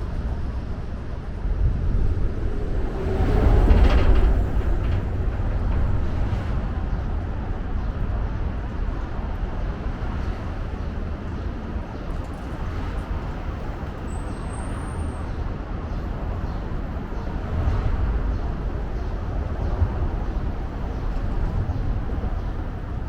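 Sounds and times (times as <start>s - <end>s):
road traffic rumble: 0.0s - 23.0s
faint high squeal: 14.1s - 15.2s.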